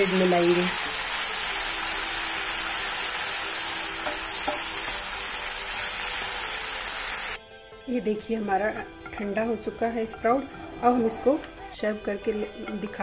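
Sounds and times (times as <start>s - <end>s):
food sizzling in butter: 0.0s - 7.4s.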